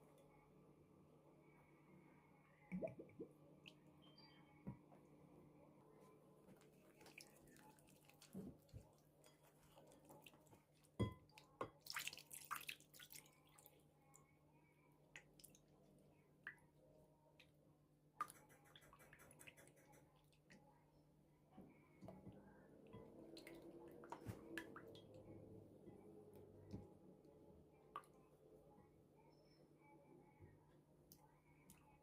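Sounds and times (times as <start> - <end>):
low steady hum: 0.0 - 11.8, 13.2 - 32.0
faint clicks and wet taps: 21.6 - 28.3.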